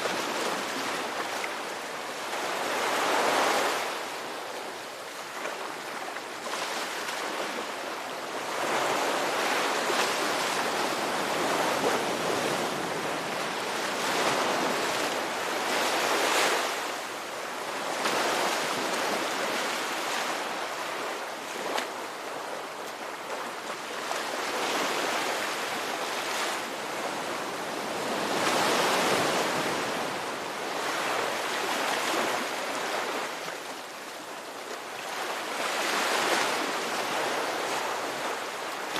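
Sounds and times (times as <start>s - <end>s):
waves breaking: 5.1s - 38.9s.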